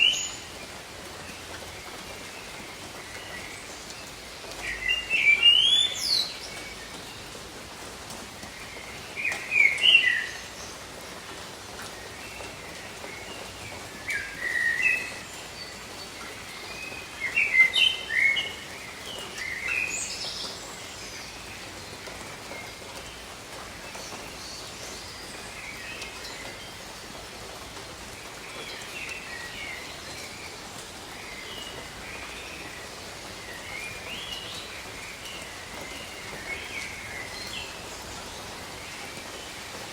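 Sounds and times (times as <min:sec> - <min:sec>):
rain on foliage: 0:00.0 - 0:39.9
whistled bird calls: 0:14.1 - 0:15.2.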